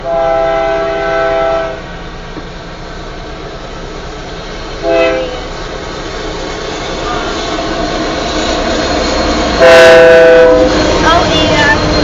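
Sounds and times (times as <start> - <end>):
locomotive air horn: 0.0 - 1.9, 4.8 - 5.5, 9.6 - 10.7
moving train rumble: 0.0 - 12.0.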